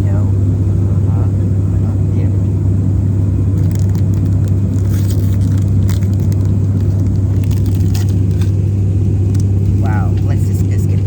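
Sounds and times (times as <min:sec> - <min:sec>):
airliner cabin drone: 0:00.0 - 0:11.0
snack wrapper crackling: 0:03.6 - 0:09.9.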